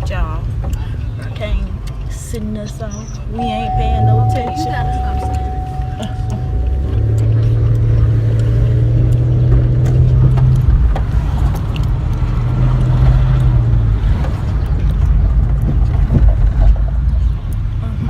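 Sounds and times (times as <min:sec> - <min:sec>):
car engine and road rumble: 0:00.0 - 0:18.0
low hum: 0:03.4 - 0:09.8.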